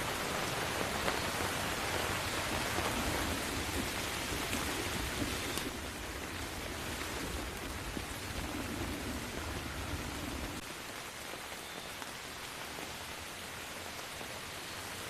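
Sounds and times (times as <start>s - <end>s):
rain falling: 0.0s - 15.0s
low thunder rumble: 1.7s - 10.6s.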